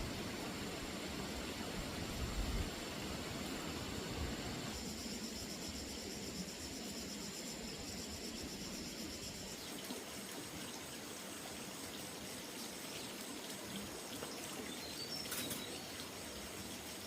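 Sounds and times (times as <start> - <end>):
steady hiss: 0.0 - 17.0
insects buzzing: 0.2 - 17.0.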